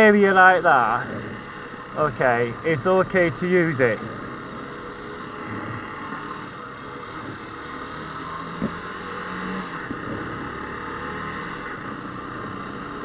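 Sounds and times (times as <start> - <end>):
motorcycle engine running: 0.0 - 13.0
road and wind noise: 0.0 - 13.0.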